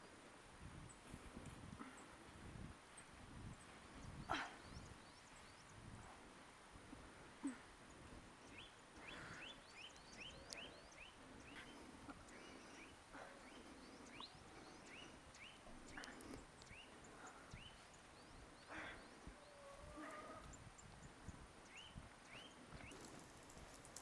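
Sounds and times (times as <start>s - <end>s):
small bird chirping: 7.9s - 19.7s, 20.5s - 23.9s.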